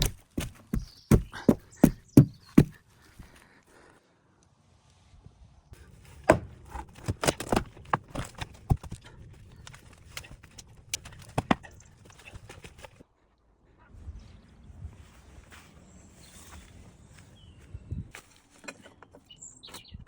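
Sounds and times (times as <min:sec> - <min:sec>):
sharp knocks and clatters: 0:00.0 - 0:02.8.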